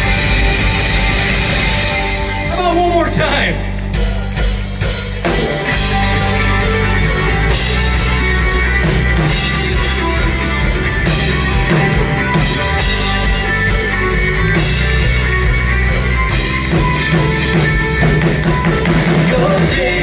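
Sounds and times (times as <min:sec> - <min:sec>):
drum kit beat: 0:00.0 - 0:20.0
electric guitar: 0:00.0 - 0:20.0
live rock band playing: 0:00.0 - 0:20.0.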